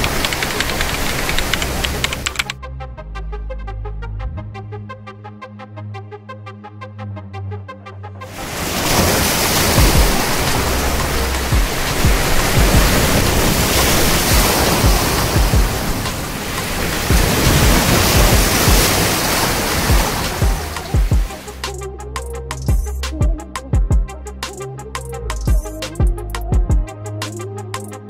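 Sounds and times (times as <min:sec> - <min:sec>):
ocean waves on shore: 0:00.0 - 0:02.6, 0:08.3 - 0:21.7
low thuds: 0:09.7 - 0:19.1, 0:19.8 - 0:21.4.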